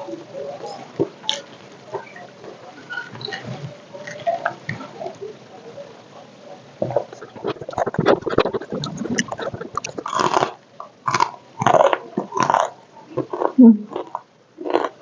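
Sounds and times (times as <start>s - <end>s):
chewing crunchy food: 6.9s - 15.0s
wet mouth sounds: 6.9s - 15.0s.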